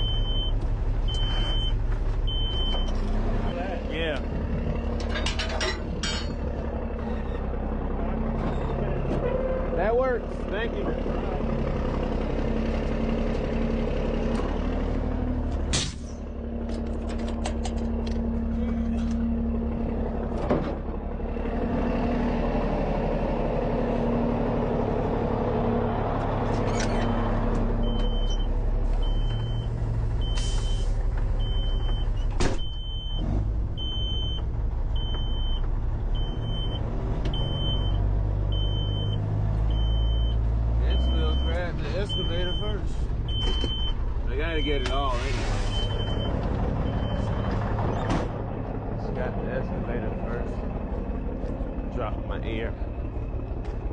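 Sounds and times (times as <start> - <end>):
diesel truck engine running: 0.0 - 53.9
reversing beeper: 26.7 - 33.2, 36.2 - 47.6.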